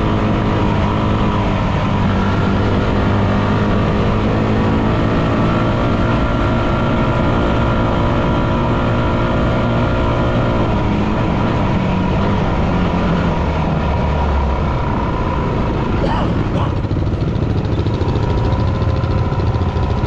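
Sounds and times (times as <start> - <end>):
dirt bike engine running: 16.0 - 20.0.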